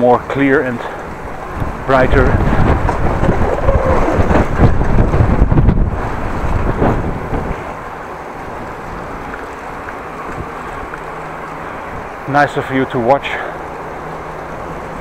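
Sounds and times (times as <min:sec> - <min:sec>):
wind buffeting microphone: 0:01.0 - 0:12.3.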